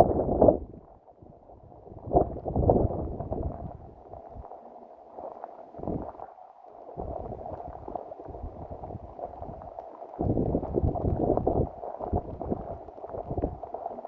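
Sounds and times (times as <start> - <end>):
wind buffeting microphone: 0.0 - 0.8, 1.6 - 4.0, 10.2 - 13.6.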